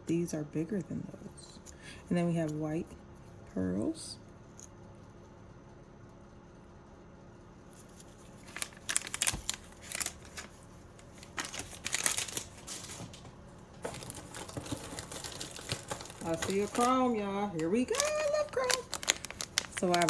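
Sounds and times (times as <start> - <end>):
plastic packaging crinkling: 7.8 - 20.0.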